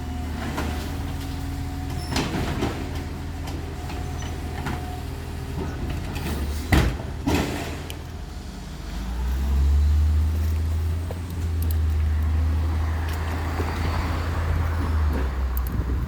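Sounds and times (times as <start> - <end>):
garbage truck running: 0.0 - 16.0
wind buffeting microphone: 13.4 - 16.0.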